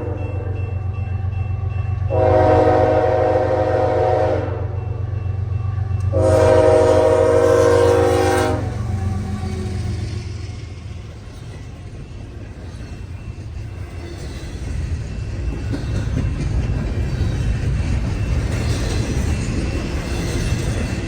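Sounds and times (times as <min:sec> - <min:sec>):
low rumble of train: 0:00.0 - 0:21.0
locomotive air horn blasts: 0:02.1 - 0:04.8, 0:06.1 - 0:09.0.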